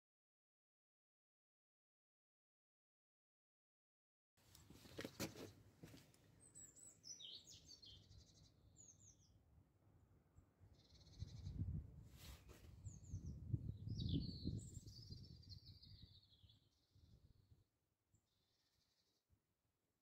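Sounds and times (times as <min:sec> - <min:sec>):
faint bird chirps and trills: 0:06.2 - 0:19.4.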